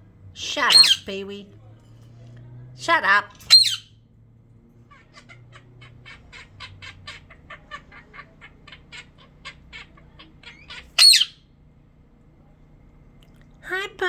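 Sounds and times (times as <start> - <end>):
bird squawk: 0.5 - 1.1, 3.4 - 4.0, 4.9 - 11.5
bird chirping: 0.5 - 1.2, 3.4 - 3.9, 4.9 - 11.5.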